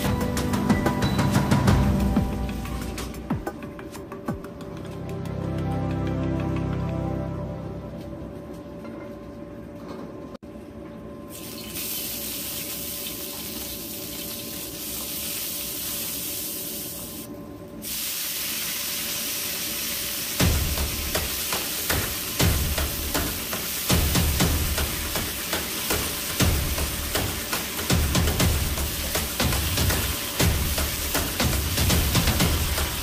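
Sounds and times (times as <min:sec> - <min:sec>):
garlic sizzling in oil: 0:11.3 - 0:33.0.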